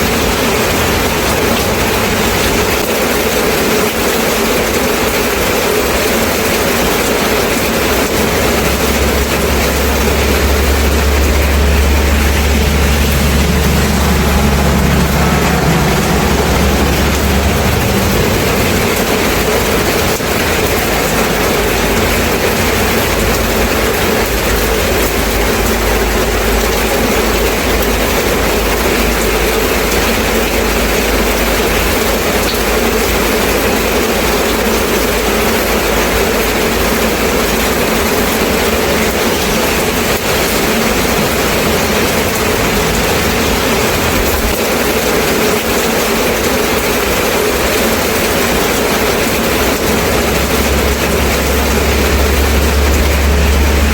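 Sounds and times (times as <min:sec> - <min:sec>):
steady rain hiss: 0:00.0 - 0:53.9
low rumble: 0:06.4 - 0:31.9, 0:47.6 - 0:53.9.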